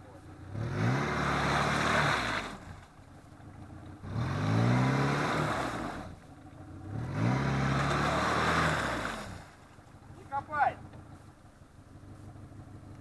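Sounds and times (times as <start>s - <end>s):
off-road engine revving hard: 0.2s - 2.9s, 3.9s - 9.6s.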